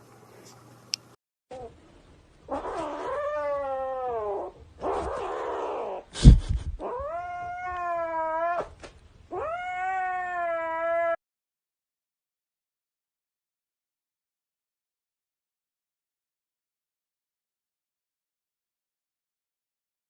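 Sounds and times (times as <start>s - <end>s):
cat yowling meows: 2.5s - 6.0s, 6.8s - 11.2s.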